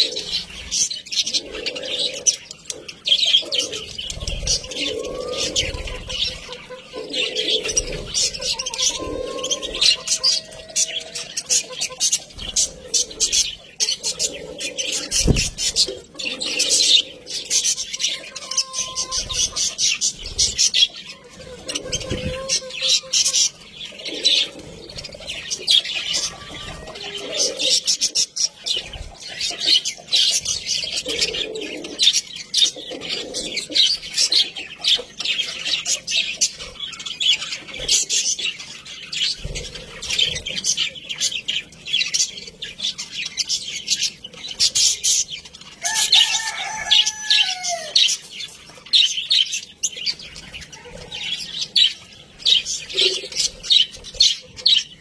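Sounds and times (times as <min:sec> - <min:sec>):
budgerigars chattering: 0:00.0 - 0:55.0.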